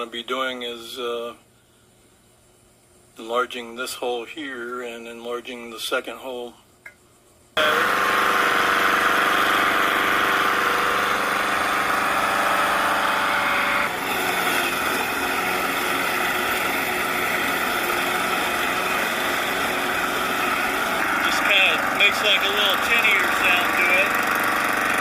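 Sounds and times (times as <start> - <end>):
lawn mower engine running: 7.6 - 25.0.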